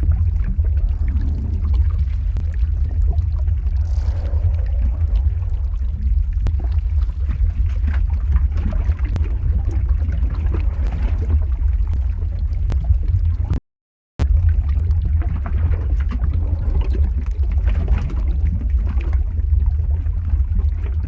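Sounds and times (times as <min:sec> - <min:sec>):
deep lava rumble: 0:00.0 - 0:13.6, 0:14.2 - 0:21.0
sharp crackles and pops: 0:00.0 - 0:13.6.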